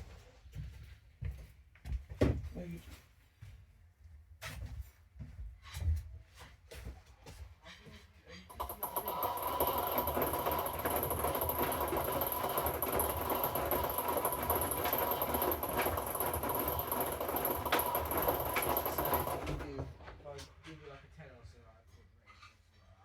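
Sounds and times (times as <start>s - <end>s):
washing machine running: 8.5s - 20.3s.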